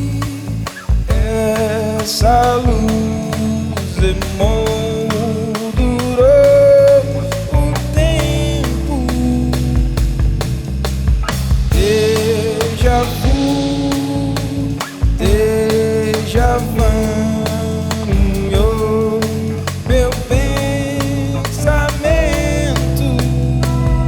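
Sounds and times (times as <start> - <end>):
acoustic guitar: 0.0 - 24.0
drum kit: 0.0 - 24.0
keyboards: 0.0 - 24.0
person singing long notes: 11.7 - 24.0.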